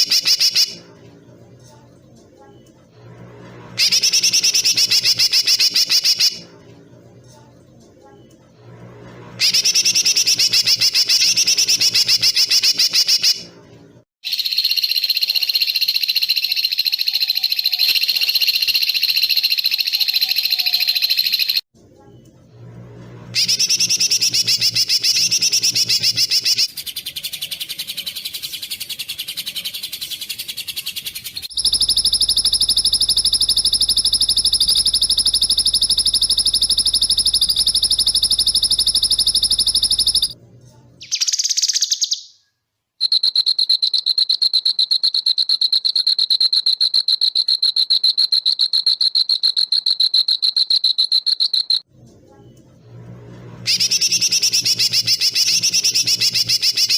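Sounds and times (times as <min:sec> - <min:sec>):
high-pitched bird trills: 0:03.8 - 0:06.4, 0:14.2 - 0:21.6, 0:23.3 - 0:40.4, 0:53.7 - 0:56.9.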